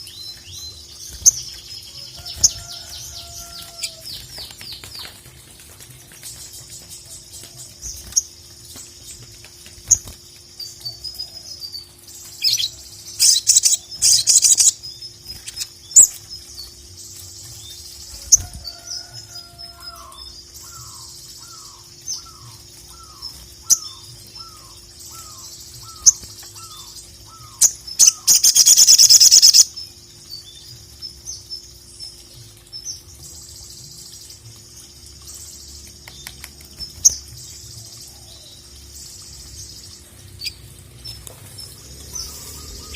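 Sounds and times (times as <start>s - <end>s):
bird chirping and trilling: 9.8s - 16.8s, 18.0s - 33.8s.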